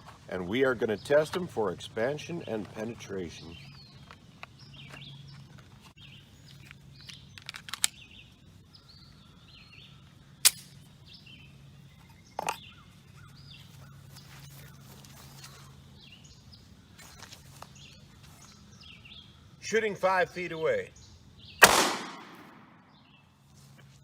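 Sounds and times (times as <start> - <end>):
low steady hum: 0.0 - 24.0
small songbirds chirping: 0.0 - 24.0
sharp snap: 21.6 - 22.7.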